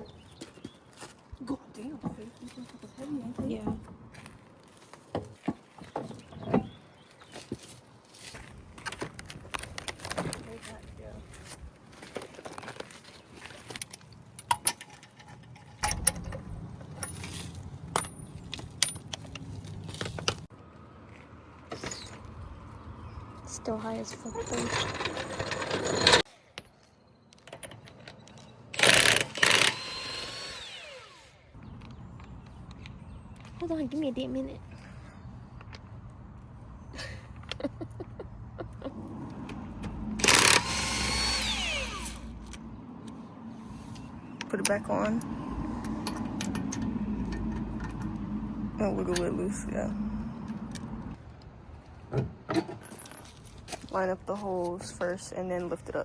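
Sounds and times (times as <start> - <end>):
metal tools clinking: 13.5 - 20.2, 23.9 - 29.7
power tool burst: 28.8 - 31.4, 40.2 - 42.3
power tool whine winding down: 28.8 - 31.5, 40.2 - 42.4.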